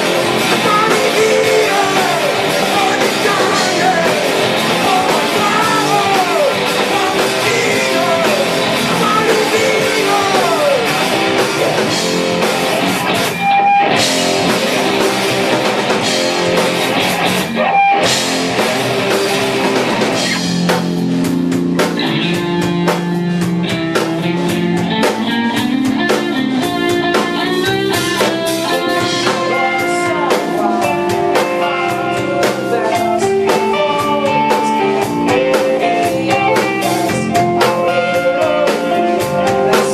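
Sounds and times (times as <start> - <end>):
low bass line: 0.0 - 13.3
electric guitar riff: 0.0 - 39.9
punk rock band playing live: 0.0 - 39.9.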